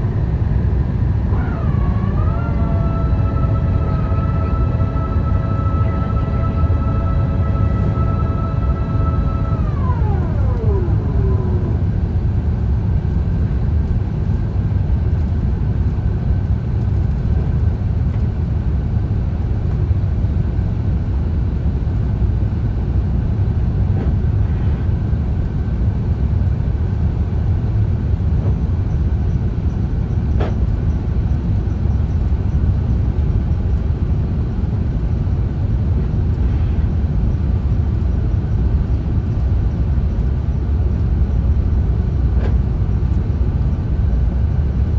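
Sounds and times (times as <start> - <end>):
faint high hum: 0.0 - 12.5
aircraft cabin rumble: 0.0 - 44.9.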